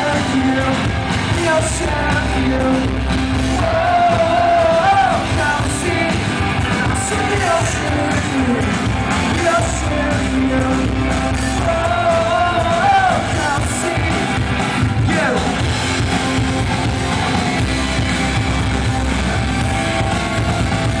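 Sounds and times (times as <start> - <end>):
person singing: 0.0 - 15.7
live rock music: 0.0 - 21.0.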